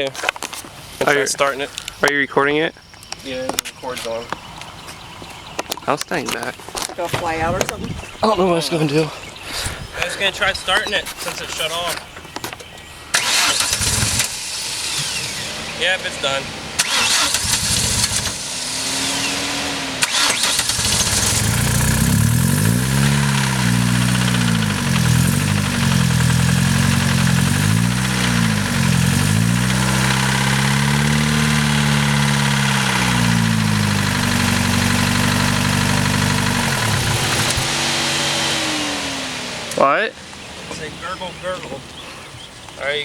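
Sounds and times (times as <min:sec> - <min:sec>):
car engine starting and revving: 0:13.1 - 0:42.0.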